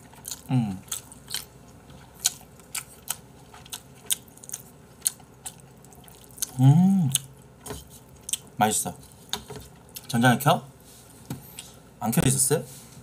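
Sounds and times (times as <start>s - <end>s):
humming with mouth full: 0.4s - 1.0s, 6.4s - 7.3s
chewing noodles with wet smacks: 2.2s - 7.3s.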